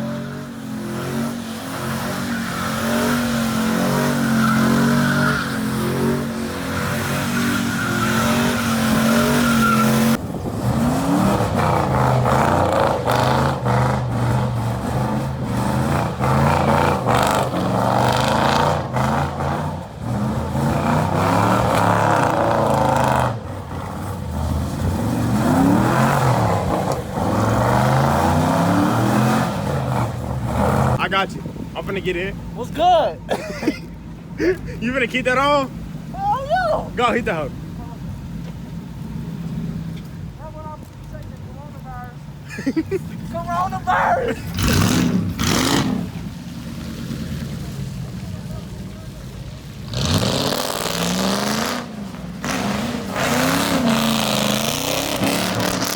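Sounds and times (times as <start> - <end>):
tyres screeching: 0.0 - 10.2, 42.5 - 46.0
car engine revving: 0.0 - 31.2, 43.0 - 55.9.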